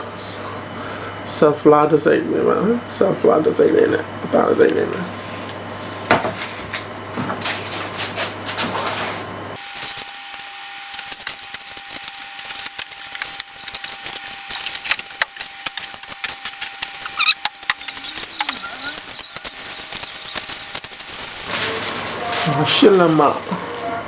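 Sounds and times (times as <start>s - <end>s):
packaging crackling and rubbing: 9.8s - 24.0s.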